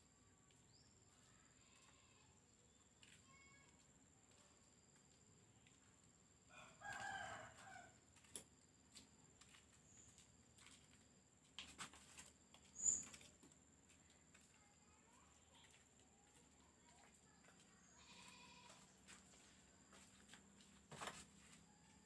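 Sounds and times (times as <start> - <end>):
faint rooster crowing: 6.5 - 8.3.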